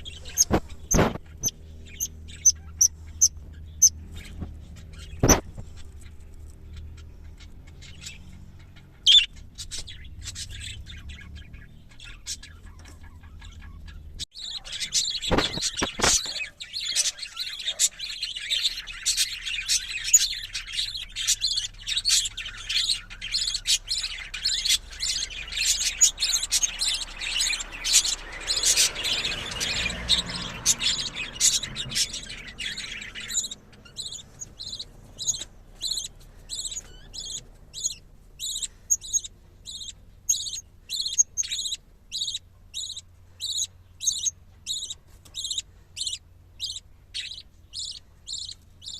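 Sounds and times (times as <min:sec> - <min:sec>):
budgerigars chirping: 0:00.0 - 0:48.9
short evenly spaced calls: 0:13.8 - 0:48.9.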